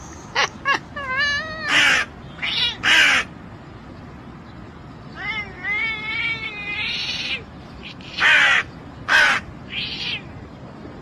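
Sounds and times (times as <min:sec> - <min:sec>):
cat meowing and crying: 0:00.0 - 0:02.0, 0:05.2 - 0:06.6.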